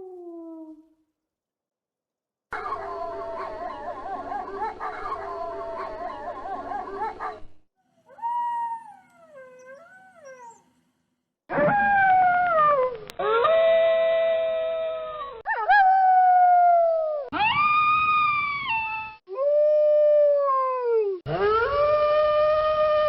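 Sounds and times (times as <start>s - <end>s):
wolves howling: 2.6s - 7.4s.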